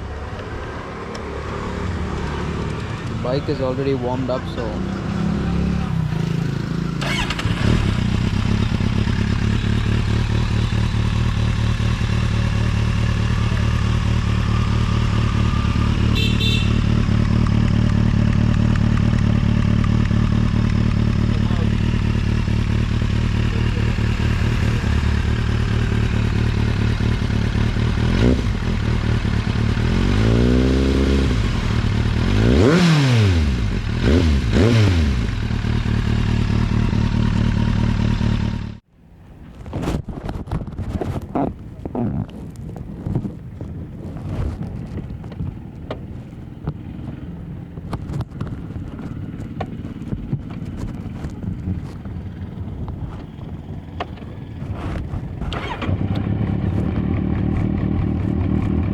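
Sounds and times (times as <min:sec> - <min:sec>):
motorcycle engine revving: 0:01.4 - 0:38.8, 0:41.4 - 0:58.9
motorcycle engine idling: 0:06.4 - 0:30.0, 0:45.4 - 0:54.6.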